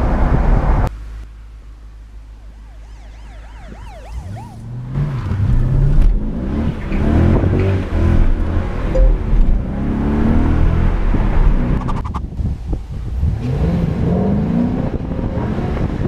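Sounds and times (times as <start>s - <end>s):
faint siren wailing: 2.4s - 4.8s
car engine revving: 4.1s - 12.0s.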